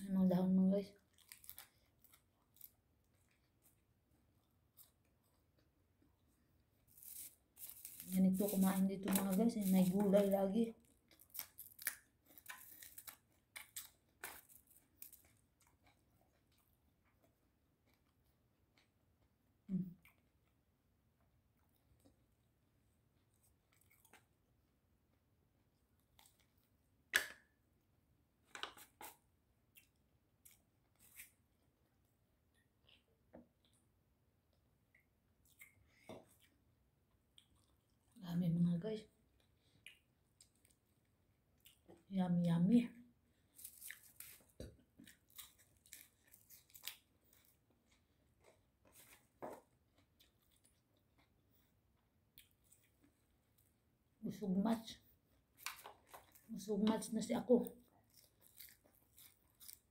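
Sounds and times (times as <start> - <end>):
faint chewing crunches: 0.9 - 20.6, 21.5 - 24.6, 28.6 - 38.2, 39.2 - 42.1, 43.3 - 54.0, 55.0 - 59.9
chewing raw vegetables: 57.6 - 59.9.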